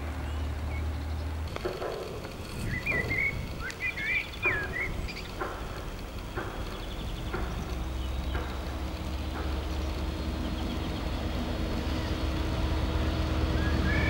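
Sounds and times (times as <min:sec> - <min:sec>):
small bird singing whistled notes: 0:02.6 - 0:05.3, 0:13.6 - 0:14.0.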